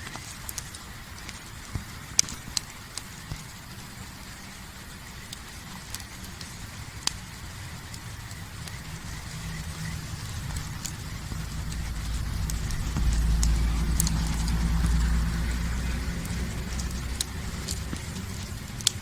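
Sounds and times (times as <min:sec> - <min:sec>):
campfire crackling and popping: 0:00.0 - 0:19.0
low steady rumble: 0:04.0 - 0:19.0.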